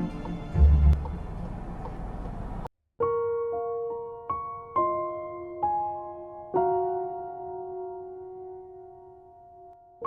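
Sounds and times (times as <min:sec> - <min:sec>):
slow piano music: 0:00.0 - 0:01.1, 0:03.0 - 0:10.0.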